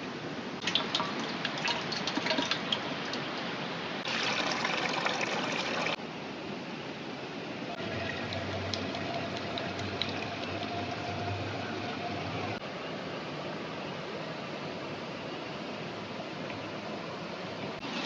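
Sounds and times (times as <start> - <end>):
running water rushing: 0.6 - 6.0, 7.7 - 12.6.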